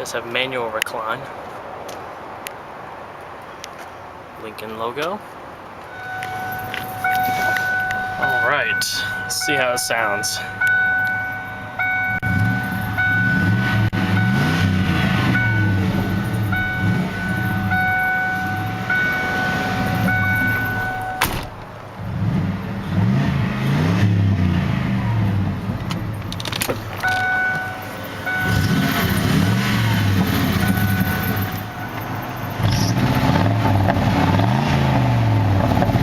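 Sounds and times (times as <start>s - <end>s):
steady high tone pulsing: 5.9s - 21.4s, 27.0s - 29.4s, 30.0s - 32.6s
car engine revving: 10.1s - 36.0s.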